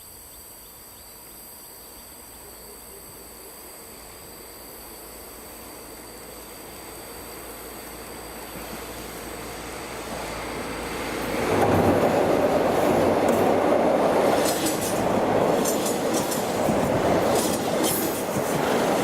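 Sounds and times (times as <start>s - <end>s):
railcar rumbling over bridge: 5.3s - 19.0s.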